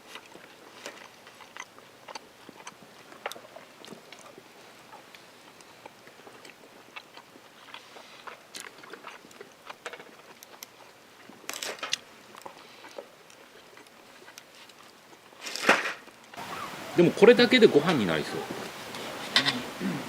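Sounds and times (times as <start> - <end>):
person chewing crunchy food: 0.0 - 15.4.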